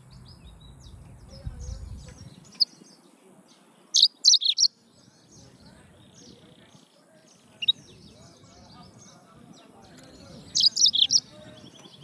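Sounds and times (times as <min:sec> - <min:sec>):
canary chirping: 0:03.9 - 0:04.8, 0:07.4 - 0:09.0, 0:09.9 - 0:12.0.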